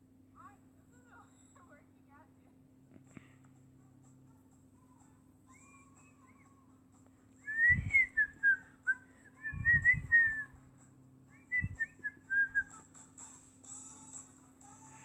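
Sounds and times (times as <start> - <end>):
person whistling: 7.4 - 10.5, 11.5 - 12.8
dull low bumps: 7.6 - 8.3, 9.5 - 10.5.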